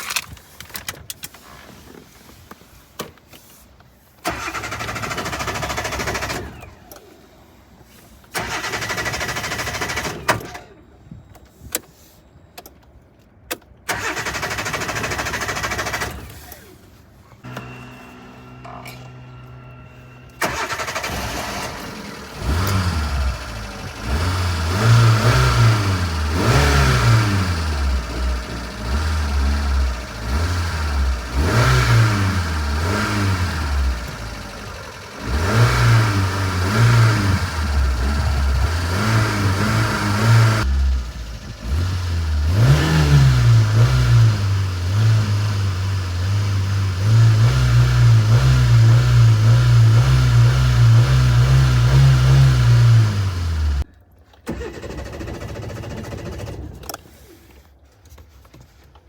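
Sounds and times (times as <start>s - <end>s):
car engine revving: 18.6s - 53.8s.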